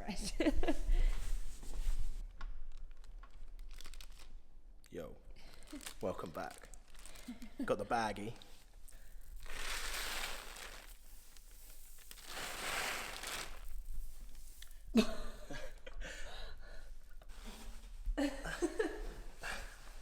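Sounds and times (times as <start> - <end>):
plastic bag rustling: 1.1 - 15.6.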